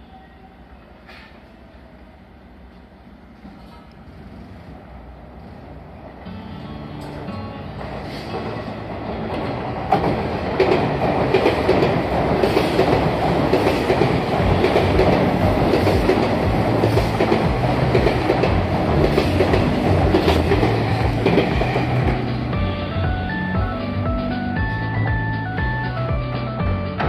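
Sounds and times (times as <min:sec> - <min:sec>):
train rumble: 0:00.6 - 0:27.0
wheels clacking over rail joints: 0:08.3 - 0:22.5.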